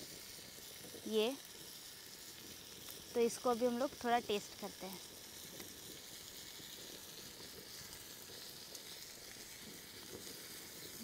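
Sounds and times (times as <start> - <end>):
fish frying in oil: 0.0 - 11.0.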